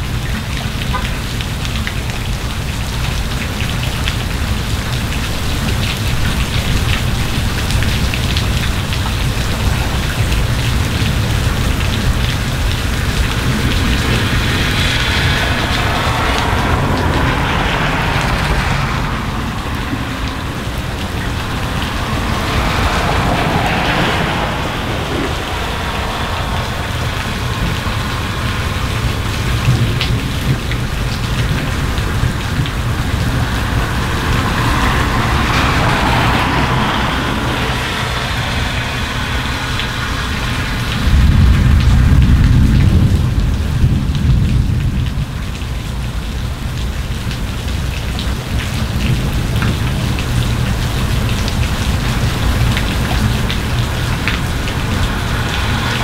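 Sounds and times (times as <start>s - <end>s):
car tyres hissing on wet road: 0.0s - 56.0s
low rumble of thunder: 0.0s - 56.0s
steady rain: 0.0s - 56.0s.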